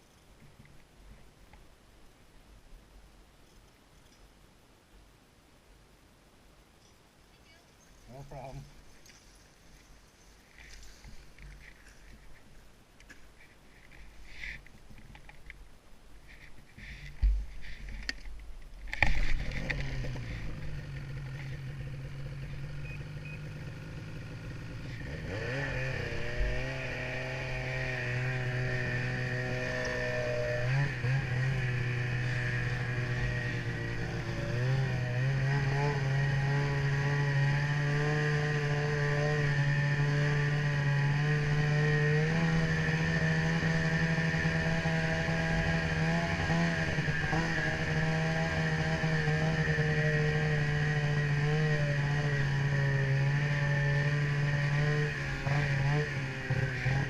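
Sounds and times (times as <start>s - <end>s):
snowmobile engine revving: 19.0s - 57.0s.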